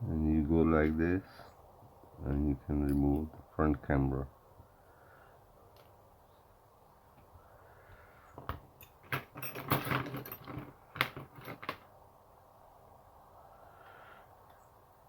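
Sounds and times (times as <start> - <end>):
small tools clicking and rattling: 8.8 - 11.9.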